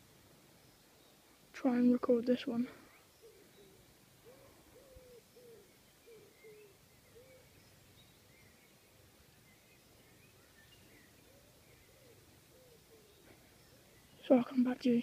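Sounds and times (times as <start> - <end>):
low hooting bird notes: 2.8 - 14.3.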